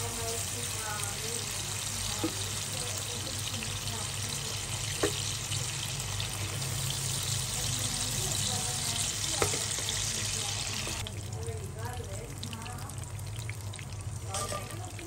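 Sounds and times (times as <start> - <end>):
vegetables sizzling in oil: 0.0 - 15.0
spoon knocking against pan: 5.0 - 5.3.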